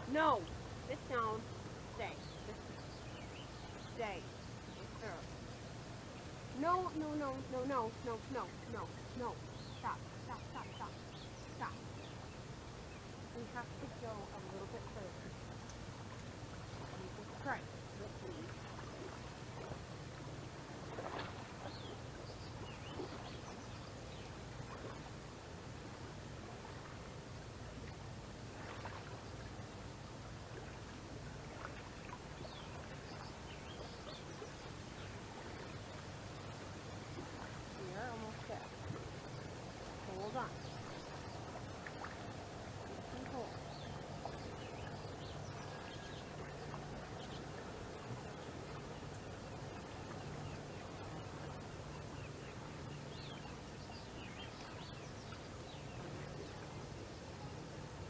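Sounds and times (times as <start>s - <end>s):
river water rushing: 0.0s - 53.8s
faint bird chirps: 0.1s - 5.4s, 42.8s - 57.7s.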